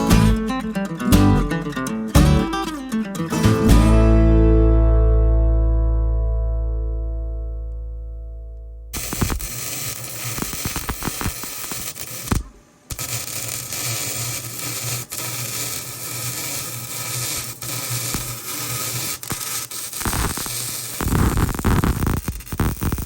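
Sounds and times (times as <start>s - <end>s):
low hum: 3.8s - 9.6s
welding arc crackling: 9.0s - 23.0s.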